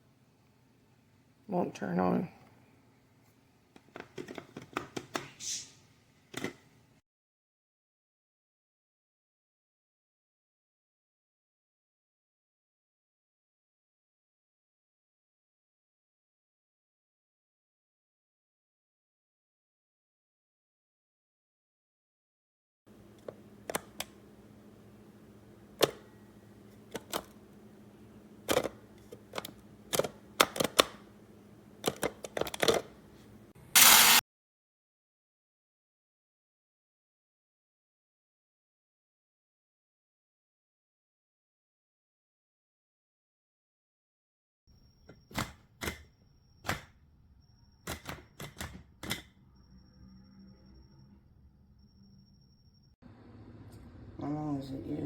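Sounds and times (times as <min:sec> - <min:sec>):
plastic clicks and taps: 0:28.5 - 0:31.0, 0:31.8 - 0:32.9.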